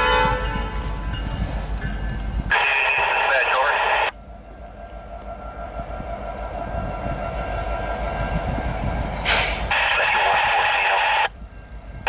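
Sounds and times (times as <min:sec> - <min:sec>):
diesel locomotives rumbling past: 0:00.0 - 0:12.0
radio hiss: 0:02.5 - 0:04.1, 0:09.7 - 0:11.3.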